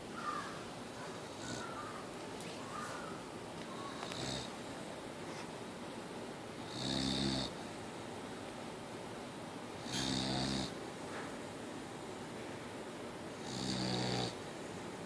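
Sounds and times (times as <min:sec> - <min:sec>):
dog snoring: 0:01.2 - 0:01.8, 0:04.0 - 0:04.5, 0:06.6 - 0:07.6, 0:09.8 - 0:10.8, 0:13.4 - 0:14.4.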